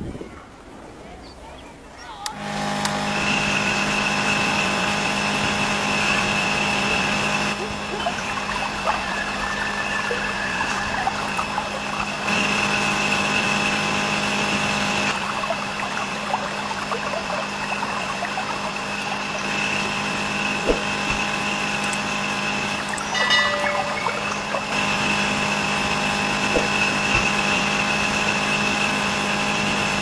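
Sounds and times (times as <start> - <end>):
small motor humming and whining: 2.3 - 23.8
water running: 5.6 - 28.4.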